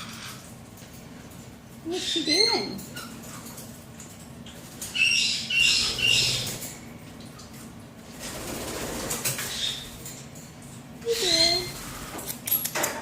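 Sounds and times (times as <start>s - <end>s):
parrot chirping: 4.9s - 6.5s.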